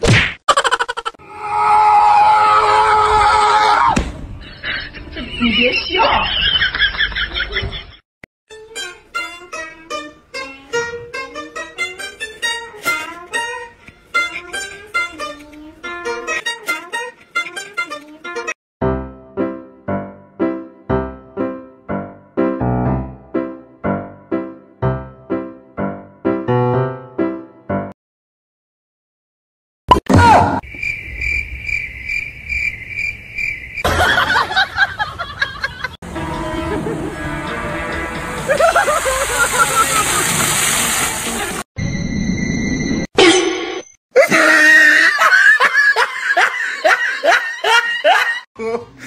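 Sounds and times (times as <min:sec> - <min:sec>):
lute playing plucked melody: 0:08.5 - 0:18.6, 0:36.1 - 0:38.7
cricket chirping: 0:30.6 - 0:33.9.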